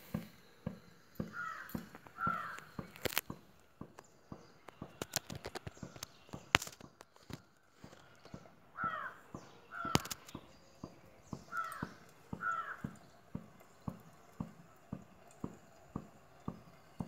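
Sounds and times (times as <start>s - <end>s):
bird calling: 1.2s - 3.1s, 8.8s - 13.1s.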